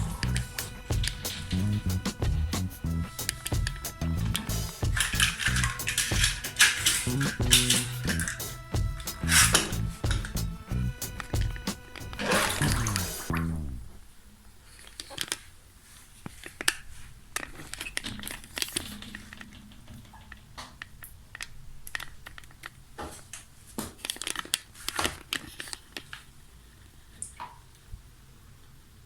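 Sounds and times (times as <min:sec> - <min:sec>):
plastic toys clicking and rustling: 0:05.0 - 0:08.4, 0:17.4 - 0:23.4, 0:24.0 - 0:26.2.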